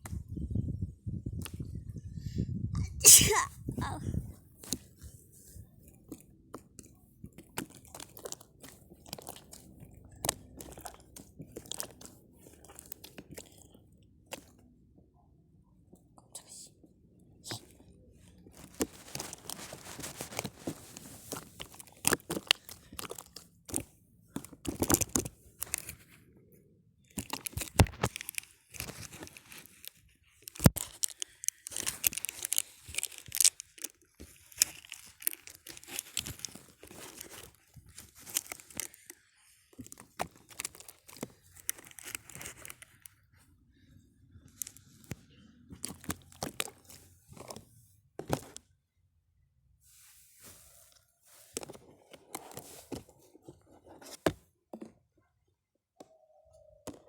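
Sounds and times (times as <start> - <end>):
paper or plastic crumpling: 18.5 - 23.8, 27.2 - 43.1.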